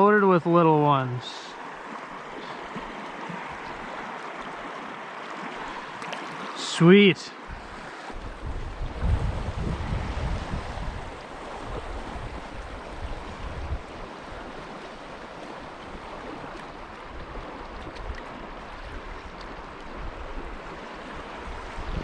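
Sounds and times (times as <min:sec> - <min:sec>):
stream water running: 0:00.0 - 0:22.0
wind rumbling on microphone: 0:07.5 - 0:22.0.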